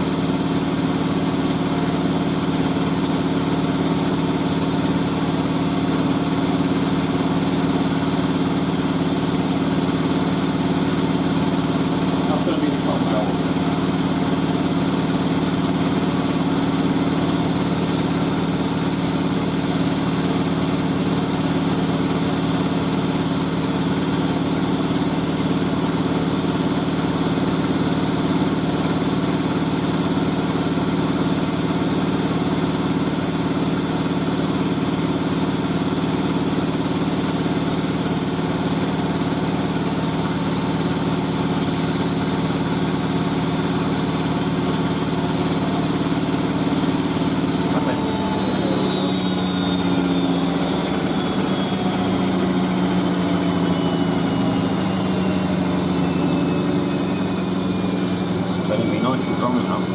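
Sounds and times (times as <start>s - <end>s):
washing machine spinning: 0.0s - 59.9s
high whine: 45.0s - 59.9s.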